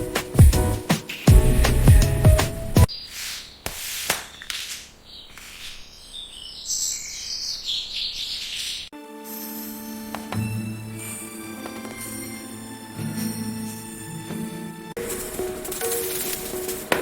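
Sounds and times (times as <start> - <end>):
background music: 0.0 - 2.9, 9.0 - 17.0
birds chirping: 4.3 - 8.9
knocks and rustles: 15.0 - 17.0.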